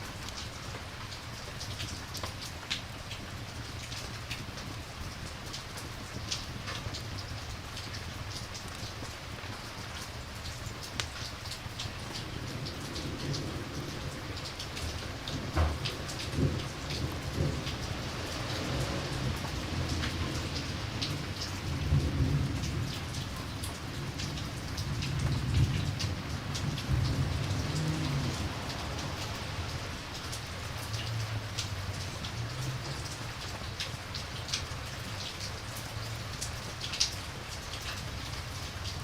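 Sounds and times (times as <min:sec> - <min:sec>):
steady rain: 0:00.0 - 0:39.0
campfire crackles and pops: 0:01.7 - 0:12.4
rolling thunder: 0:14.8 - 0:29.6.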